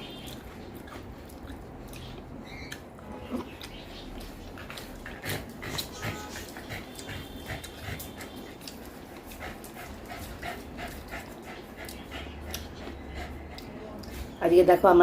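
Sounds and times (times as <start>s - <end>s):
dog panting: 0.0s - 2.9s, 3.5s - 15.0s.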